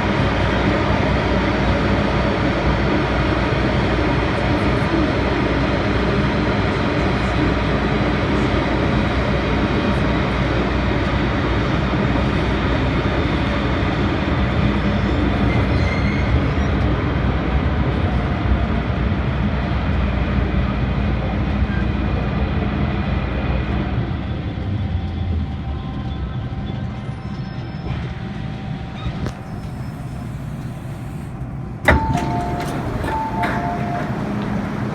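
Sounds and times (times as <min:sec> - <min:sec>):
train rumbling through tunnel: 0:00.0 - 0:34.9
sharp clunk: 0:29.3 - 0:34.9
short steady tones: 0:29.3 - 0:34.9.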